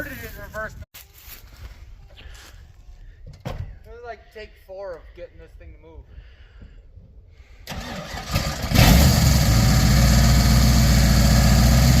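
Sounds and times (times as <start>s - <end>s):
starter cranking engine: 7.7s - 12.0s
truck engine idling: 7.7s - 12.0s.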